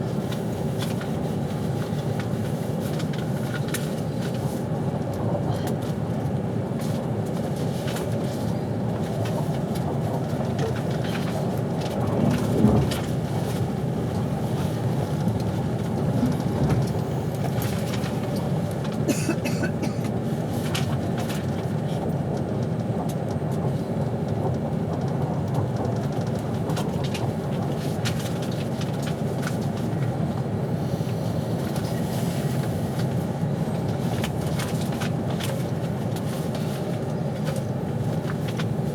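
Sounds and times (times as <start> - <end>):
train rumbling on rails: 0.0 - 38.9
train carriage jolt: 9.2 - 20.0.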